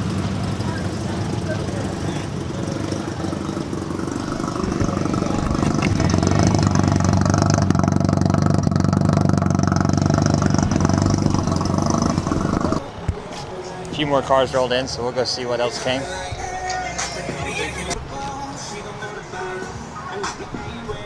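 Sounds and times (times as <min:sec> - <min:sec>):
vehicle engine running: 0:00.0 - 0:12.9.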